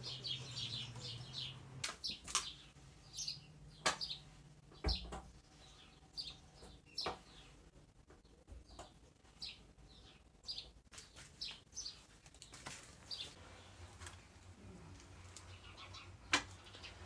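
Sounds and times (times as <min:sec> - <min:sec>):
small bird chirping: 0:00.0 - 0:12.1.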